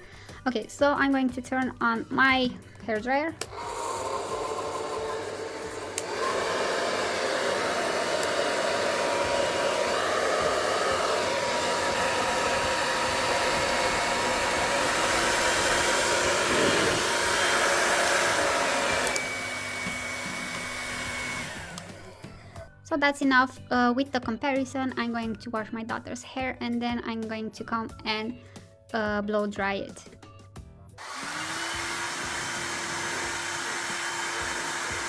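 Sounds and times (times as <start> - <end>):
hair dryer running: 3.4 - 22.5, 31.0 - 35.0.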